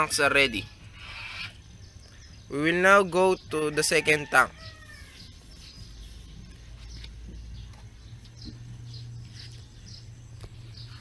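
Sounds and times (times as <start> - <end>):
low steady hum: 4.8 - 11.0.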